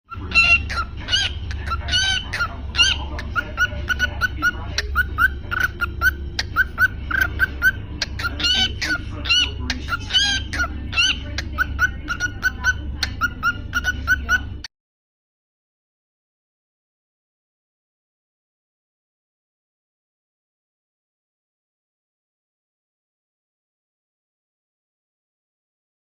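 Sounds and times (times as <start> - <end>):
cockatiel chirping: 0.1 - 14.6
low steady hum: 0.1 - 14.7.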